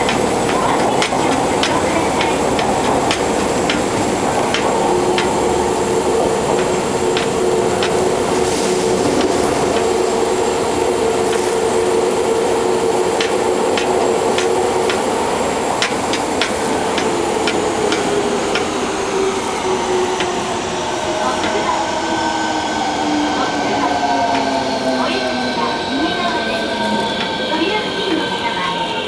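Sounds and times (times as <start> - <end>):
wheels clicking on track: 0.0 - 12.3, 13.1 - 22.6
train running with whine: 0.0 - 29.0.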